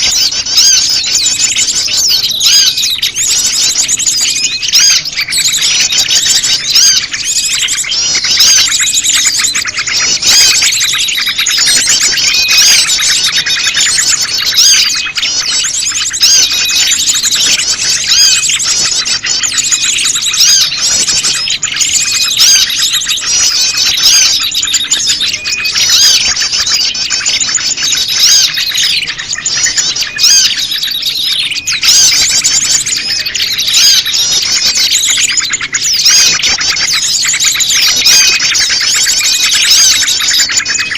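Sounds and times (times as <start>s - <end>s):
bird calls: 0.0s - 40.9s
chorus of small birds: 0.0s - 40.9s.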